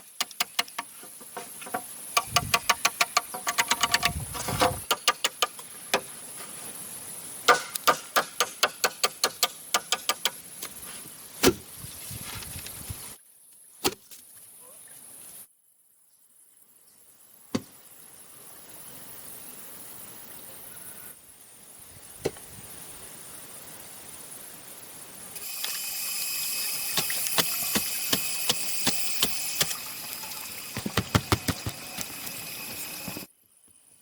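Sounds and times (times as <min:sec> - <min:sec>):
tools chopping bamboo: 0:00.1 - 0:06.1, 0:07.5 - 0:10.4, 0:26.9 - 0:29.8, 0:30.8 - 0:32.3
high insect drone: 0:22.7 - 0:34.0.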